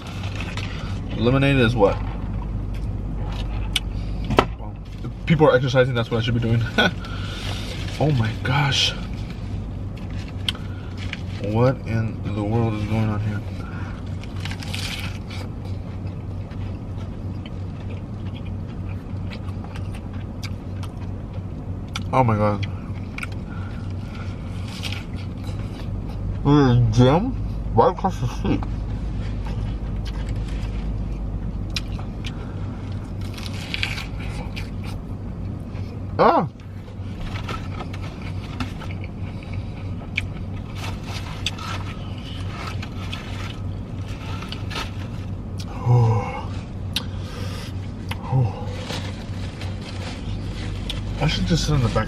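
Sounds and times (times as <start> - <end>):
car engine and tyres hum: 0.0 - 52.0
clicks and rustles of eating: 36.9 - 45.7, 48.0 - 52.0.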